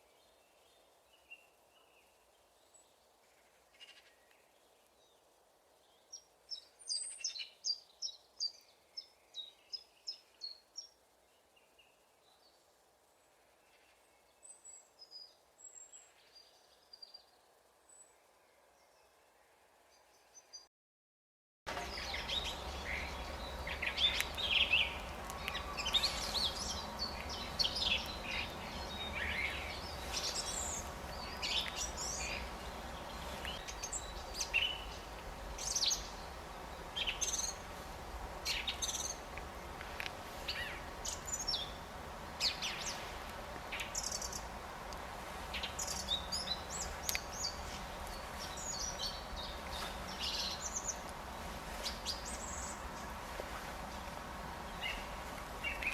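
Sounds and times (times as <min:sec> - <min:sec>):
small birds chirping: 0:00.0 - 0:12.8, 0:21.7 - 0:55.9
steady low rumble: 0:21.7 - 0:42.4.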